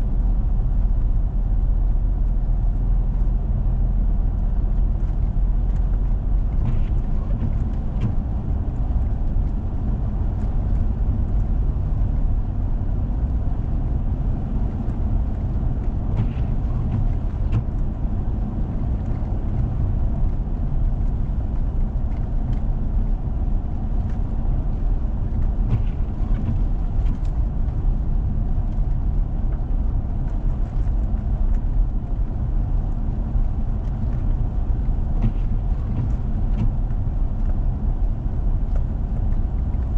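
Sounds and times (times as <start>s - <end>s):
vehicle engine and tyres rumbling: 0.0s - 39.9s
light ticks: 4.4s - 12.4s.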